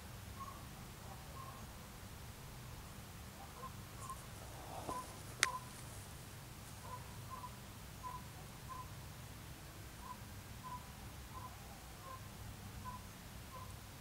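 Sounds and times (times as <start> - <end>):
faint short bird calls: 3.4 - 6.1, 6.7 - 9.0
steady low hum: 3.5 - 7.5.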